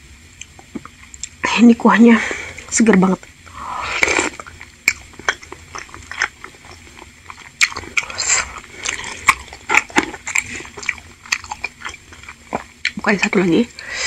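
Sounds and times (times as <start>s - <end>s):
wet chewing with mouth smacks: 4.0s - 13.4s.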